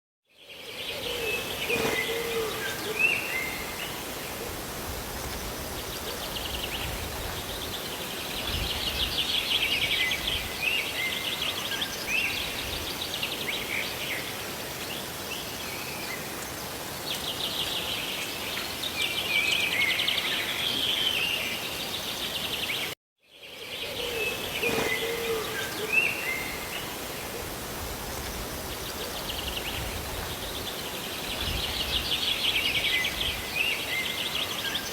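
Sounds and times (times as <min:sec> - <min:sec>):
birds chirping and trilling: 0:00.5 - 0:04.6, 0:15.1 - 0:27.4
steady rain: 0:01.3 - 0:23.0, 0:24.2 - 0:34.9.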